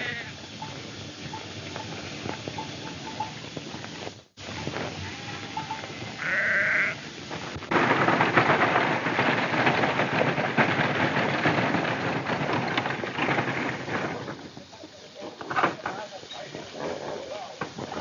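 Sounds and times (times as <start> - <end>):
flock of sheep bleating: 0.0 - 0.4, 5.0 - 7.0
sheep bleating: 0.0 - 0.4, 5.0 - 7.0.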